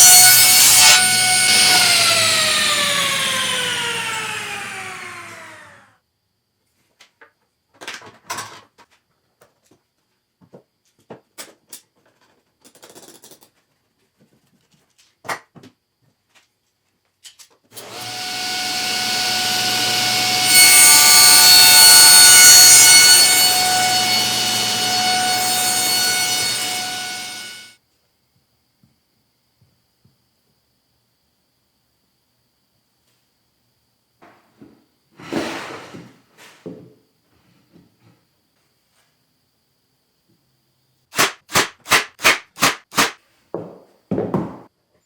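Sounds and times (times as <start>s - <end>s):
power tool cutting wood: 0.0s - 5.9s, 17.8s - 27.8s
power tool motor winding down: 0.0s - 5.9s, 17.8s - 27.7s.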